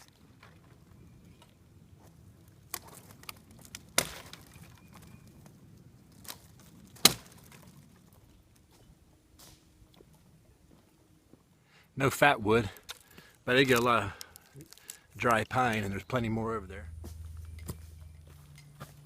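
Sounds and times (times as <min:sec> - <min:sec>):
sticks snapping: 0:06.1 - 0:07.7, 0:13.7 - 0:15.5.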